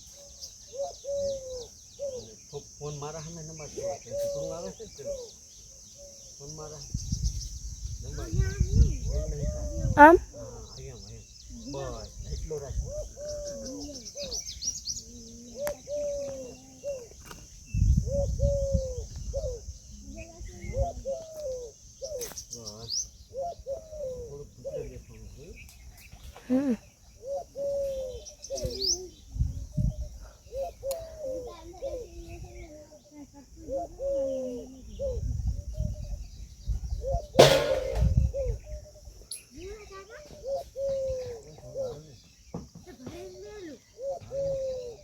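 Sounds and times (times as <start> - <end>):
peahen calling: 0.0 - 45.0
small birds chirping: 0.0 - 45.0
loud harsh bird call: 37.0 - 38.8.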